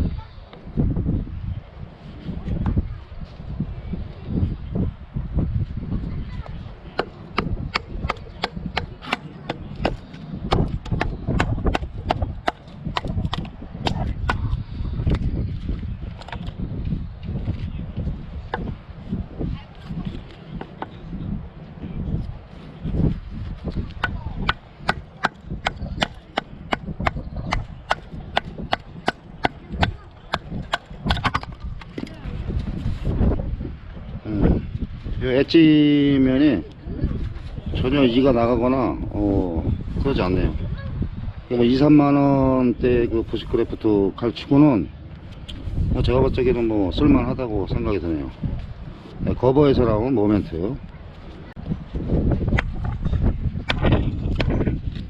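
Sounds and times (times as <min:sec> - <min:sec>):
low wind rumble: 0:00.0 - 0:55.0
knife chopping into wood: 0:07.0 - 0:14.5, 0:23.9 - 0:32.1, 0:53.6 - 0:54.5.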